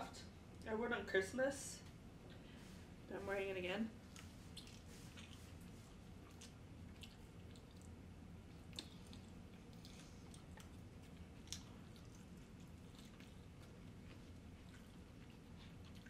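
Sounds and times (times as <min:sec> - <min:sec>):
low room hum: 0:00.0 - 0:16.0
soft chewing: 0:03.9 - 0:16.0.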